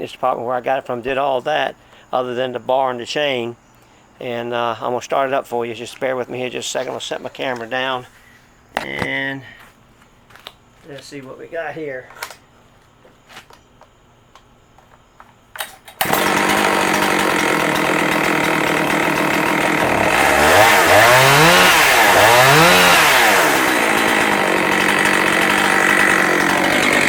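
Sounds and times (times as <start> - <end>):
chainsaw engine running: 16.0 - 27.0.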